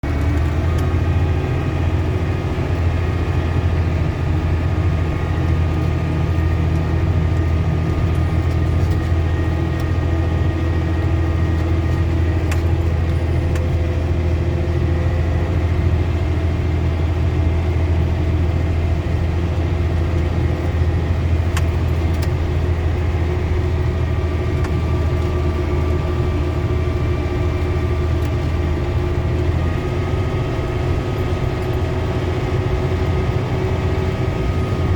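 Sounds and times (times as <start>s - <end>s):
vehicle engine idling: 0.0s - 34.9s.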